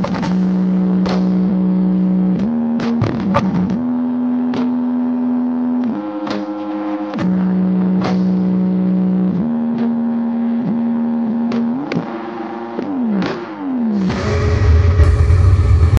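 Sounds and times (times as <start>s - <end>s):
deep heavy bass: 0.0s - 5.9s, 13.8s - 16.0s
buzzy synth notes: 0.0s - 16.0s.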